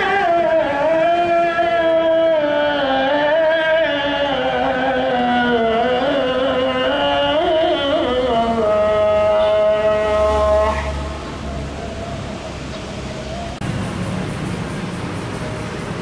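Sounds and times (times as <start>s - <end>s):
person chanting recitation: 0.0s - 12.3s.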